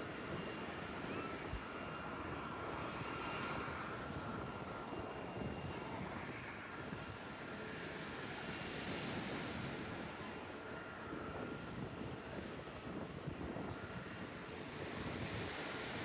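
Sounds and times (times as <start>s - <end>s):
wind buffeting microphone: 11.1s - 16.0s
waves washing on beach: 13.4s - 16.0s.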